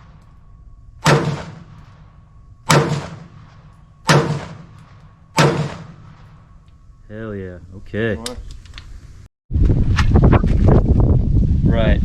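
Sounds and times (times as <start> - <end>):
gunshots: 1.0 - 6.4.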